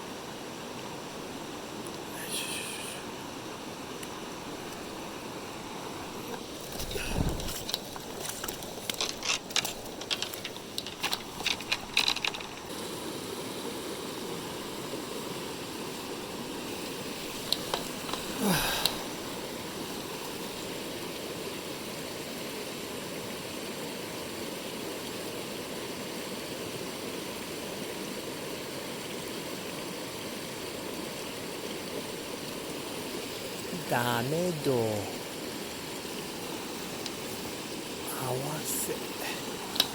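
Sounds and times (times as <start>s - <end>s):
mountain stream rushing: 0.0s - 39.9s
sharp clicks and knocks: 6.8s - 12.7s.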